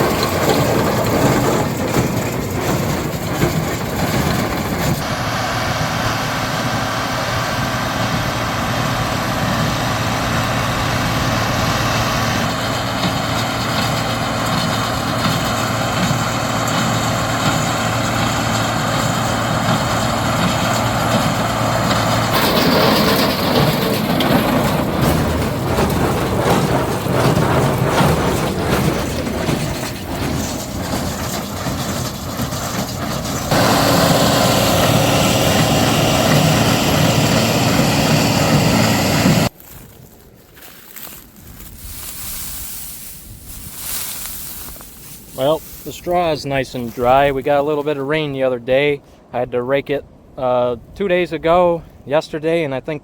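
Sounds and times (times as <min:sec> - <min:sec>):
baler mechanical clatter: 0:00.0 - 0:05.1, 0:09.4 - 0:39.5
tractor diesel engine running: 0:00.0 - 0:50.9.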